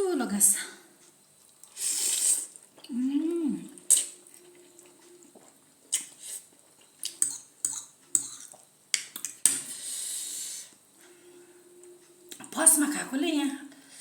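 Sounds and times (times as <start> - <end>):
wet mouth clicks and smacks: 7.0 - 9.6.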